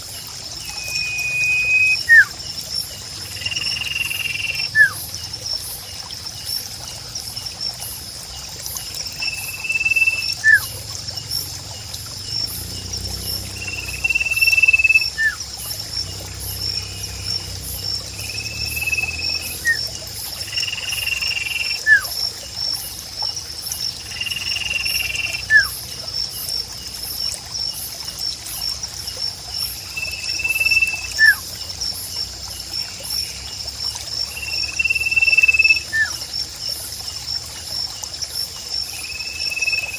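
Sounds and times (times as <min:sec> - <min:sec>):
pulsing insect chorus: 0:00.0 - 0:39.9
songbird whistling: 0:00.6 - 0:02.3, 0:03.5 - 0:05.0, 0:09.3 - 0:10.7, 0:13.7 - 0:15.4, 0:18.3 - 0:19.8, 0:21.0 - 0:22.1, 0:25.0 - 0:25.8, 0:30.0 - 0:31.4.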